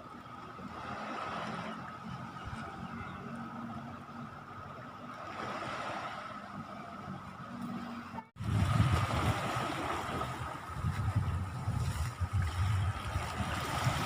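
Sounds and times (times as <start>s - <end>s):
surf: 0.0s - 14.0s
wind rumbling on microphone: 0.0s - 14.0s.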